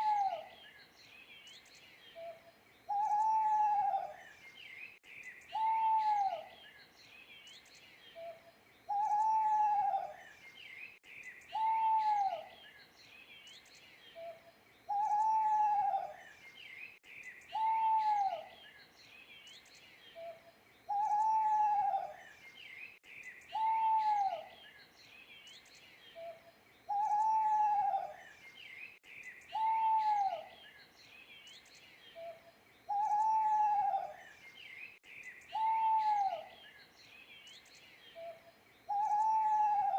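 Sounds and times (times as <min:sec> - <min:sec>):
owl hooting: 0:00.0 - 0:00.5, 0:02.2 - 0:04.2, 0:05.5 - 0:06.5, 0:08.2 - 0:10.2, 0:11.5 - 0:12.5, 0:14.2 - 0:16.2, 0:17.5 - 0:18.5, 0:20.2 - 0:22.2, 0:23.5 - 0:24.5, 0:26.2 - 0:28.2, 0:29.5 - 0:30.6, 0:32.2 - 0:34.2, 0:35.5 - 0:36.6, 0:38.2 - 0:39.9
small birds chirping: 0:00.0 - 0:39.9.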